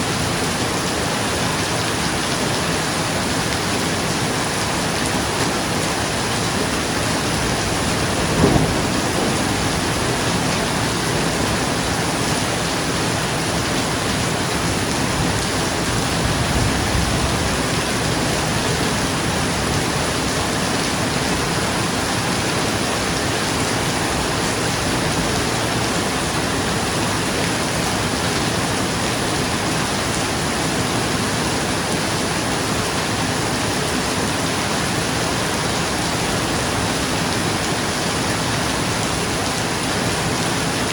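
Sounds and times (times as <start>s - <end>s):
rain pattering on a roof: 0.0s - 40.9s
thunder rumbling: 5.5s - 20.1s.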